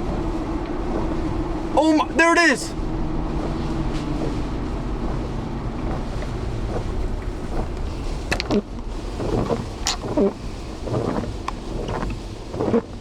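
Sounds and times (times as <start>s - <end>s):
wind and car rumble inside car: 0.0s - 13.0s.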